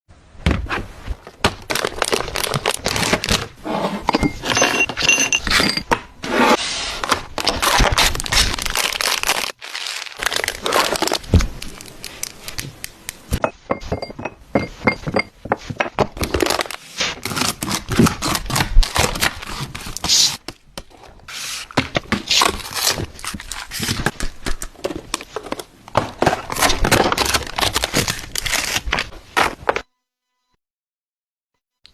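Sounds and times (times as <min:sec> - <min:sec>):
packaging crinkling: 0:01.2 - 0:03.5, 0:07.0 - 0:13.4, 0:16.2 - 0:20.1, 0:21.6 - 0:25.7, 0:26.4 - 0:29.1.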